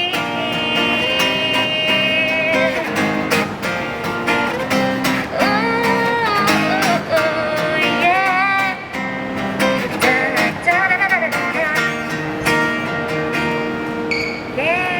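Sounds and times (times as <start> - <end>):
person singing: 0.0 - 3.3, 5.0 - 12.2
acoustic guitar strumming: 0.0 - 14.9.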